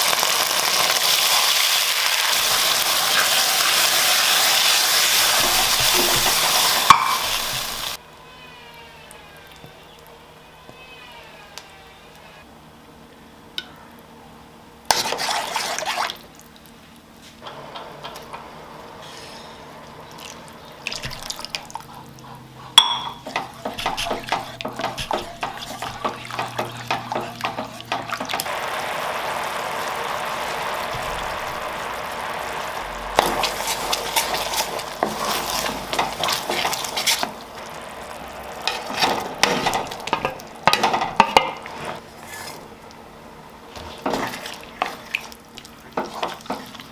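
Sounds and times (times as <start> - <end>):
water running: 0.0 - 8.0, 19.8 - 46.9
dishes and utensils clinking: 5.4 - 7.8, 22.7 - 28.5.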